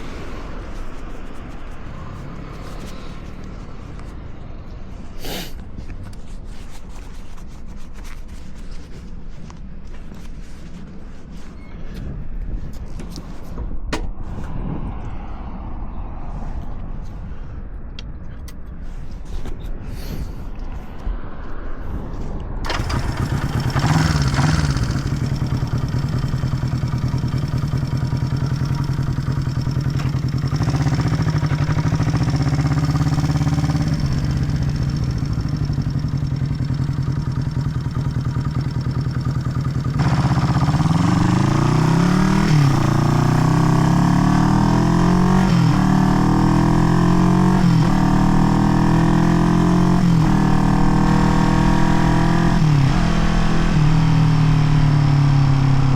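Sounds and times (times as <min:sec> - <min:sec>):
motorcycle engine accelerating: 0:22.6 - 0:55.9.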